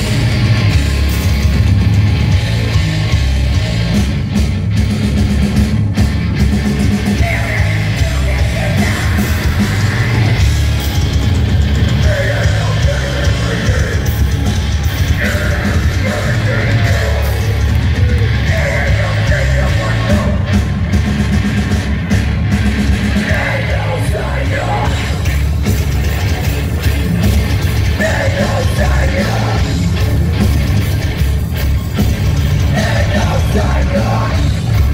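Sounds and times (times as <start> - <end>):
heavy metal band playing: 0.0 - 34.9
shouted screamed vocals: 12.0 - 20.6.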